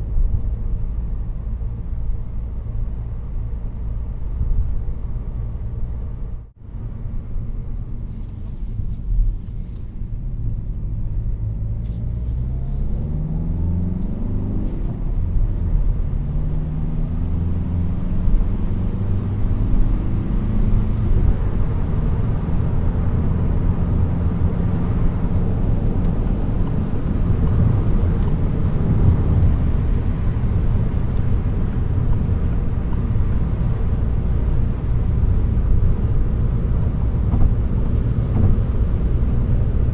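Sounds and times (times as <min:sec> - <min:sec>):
tyre and road rumble: 0:07.6 - 0:39.9
diesel car engine accelerating: 0:09.1 - 0:39.9.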